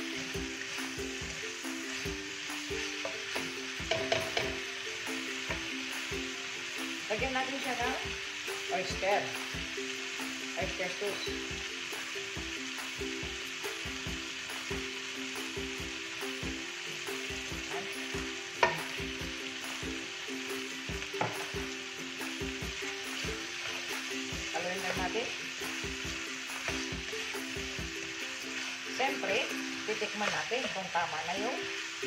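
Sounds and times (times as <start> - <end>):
food sizzling in a wok: 0.0 - 32.0
spoon clinking against pan: 3.0 - 4.7.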